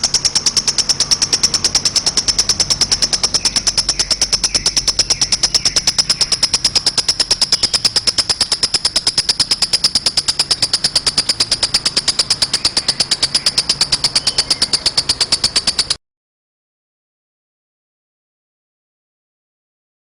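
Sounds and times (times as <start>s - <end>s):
bird trilling chirps: 0.0s - 16.0s.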